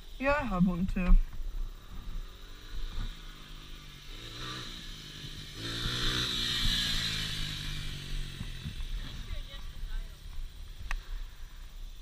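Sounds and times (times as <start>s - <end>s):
dirt bike engine revving: 1.6s - 10.4s.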